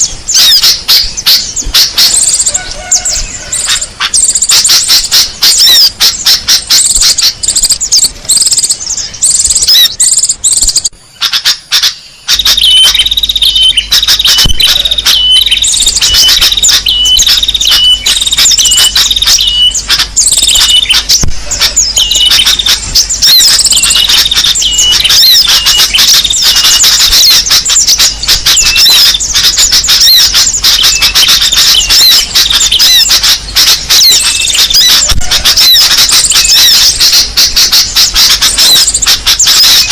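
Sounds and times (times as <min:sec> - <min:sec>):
songbirds chirping and twittering: 0:00.0 - 0:39.9
short high bird call: 0:09.2 - 0:39.9.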